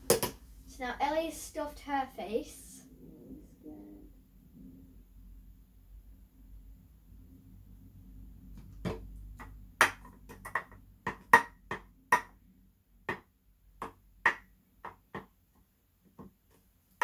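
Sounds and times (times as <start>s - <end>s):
containers knocking on hard surface: 8.8s - 12.3s.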